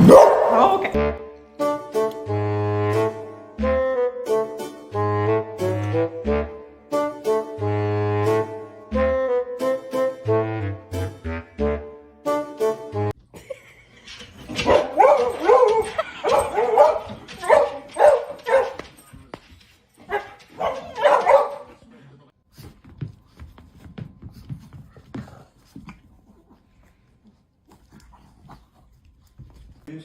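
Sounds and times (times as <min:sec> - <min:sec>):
dog barking and whining: 0:00.0 - 0:01.0, 0:14.6 - 0:18.8, 0:20.1 - 0:21.7.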